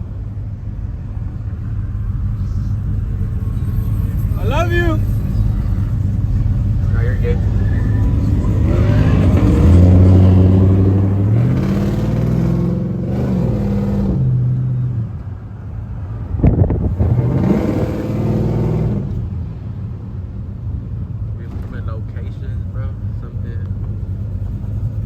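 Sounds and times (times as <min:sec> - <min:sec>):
truck engine revving: 0:00.0 - 0:15.3, 0:16.2 - 0:19.6.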